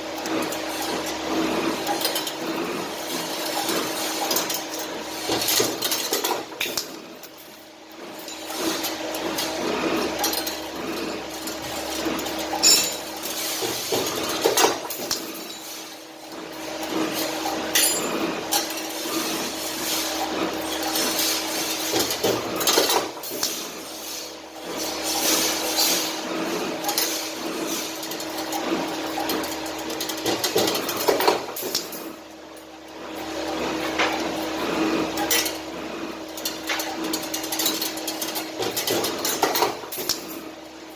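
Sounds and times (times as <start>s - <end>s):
metallic clinks and clicks: 12.6s - 13.0s.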